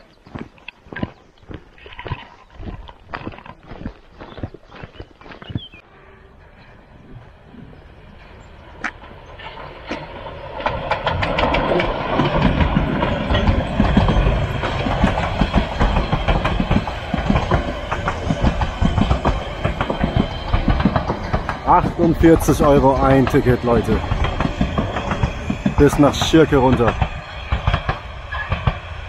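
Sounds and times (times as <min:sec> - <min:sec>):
train wheels clattering over rail joints: 0:08.2 - 0:29.0.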